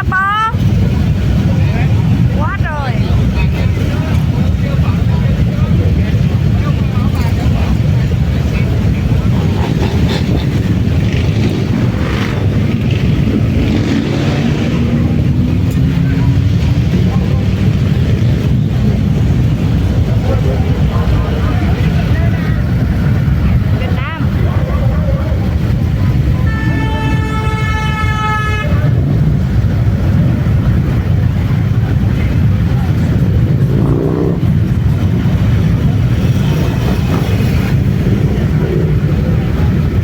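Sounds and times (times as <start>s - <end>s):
motorcycle engines rumbling: 0.0s - 40.0s
horn steady note: 26.4s - 29.2s.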